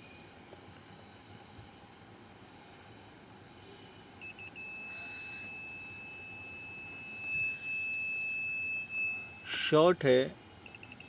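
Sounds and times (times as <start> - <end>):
multimeter beeping: 4.2 - 9.9, 10.6 - 11.0.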